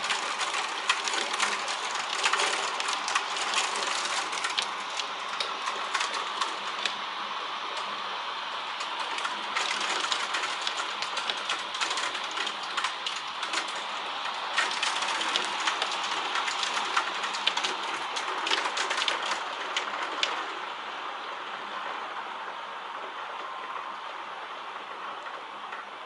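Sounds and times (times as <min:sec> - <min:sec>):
hailstones clicking on hard surfaces: 0:00.0 - 0:07.1, 0:08.6 - 0:20.6
heavy rain hiss: 0:00.0 - 0:26.0.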